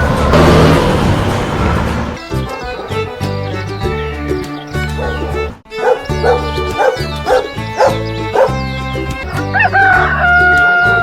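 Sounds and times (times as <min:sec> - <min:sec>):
music: 0:00.1 - 0:11.0
dog barking: 0:04.9 - 0:08.6.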